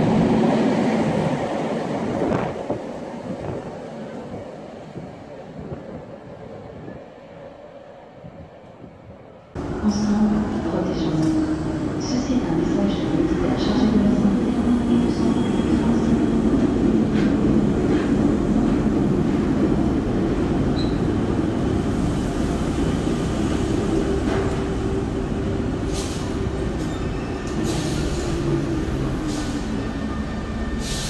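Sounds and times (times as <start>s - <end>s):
electric train rumbling to a stop: 9.6s - 31.0s.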